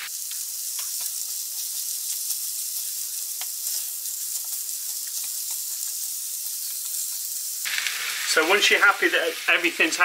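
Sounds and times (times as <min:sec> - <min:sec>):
food sizzling in oil: 0:00.0 - 0:10.0
spatula clicking and scraping pan: 0:00.3 - 0:08.0.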